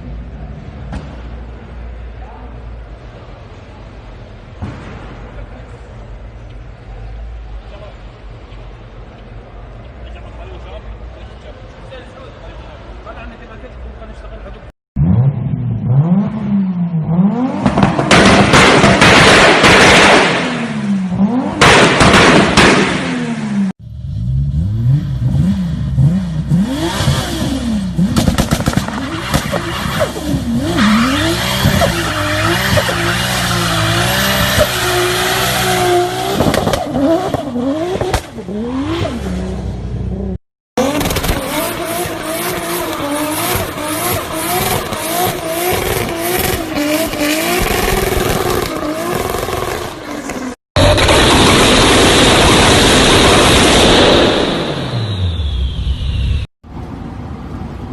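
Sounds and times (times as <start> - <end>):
car engine revving hard: 15.0 - 39.7, 40.8 - 54.7.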